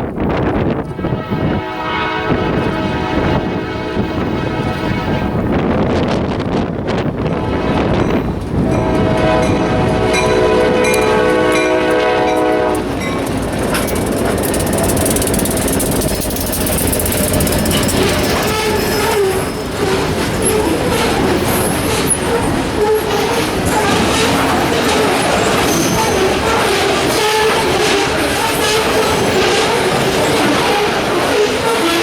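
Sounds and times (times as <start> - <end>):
train wheel and rail rumble: 0.0 - 32.0
locomotive air horn blast: 0.9 - 5.6, 7.3 - 13.0, 17.2 - 32.0
wheel squeal: 13.7 - 32.0.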